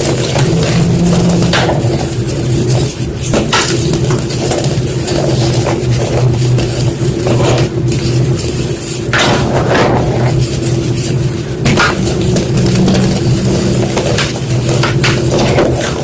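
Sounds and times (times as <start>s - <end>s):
low hum: 0.0s - 2.8s, 11.6s - 15.0s.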